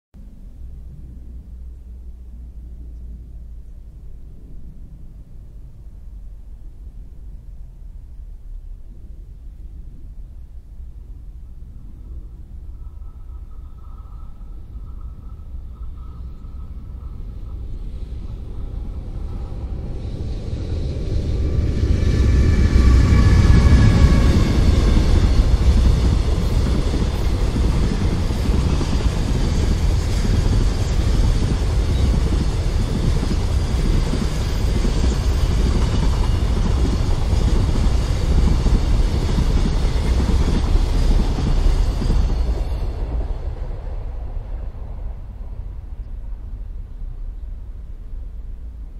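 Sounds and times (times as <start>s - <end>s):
electric locomotive whine: 0.2s - 48.9s
freight train rumbling past: 0.2s - 48.9s
train wheels clattering on rails: 12.0s - 45.0s.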